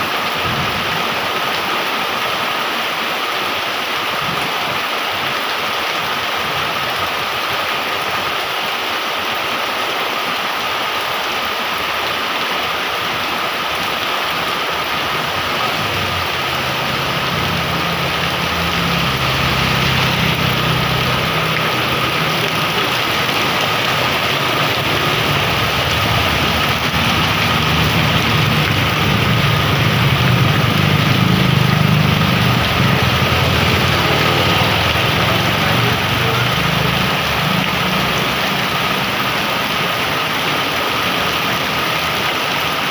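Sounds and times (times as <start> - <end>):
heavy rain pouring: 0.0 - 42.9
vehicle engine running: 15.7 - 38.5.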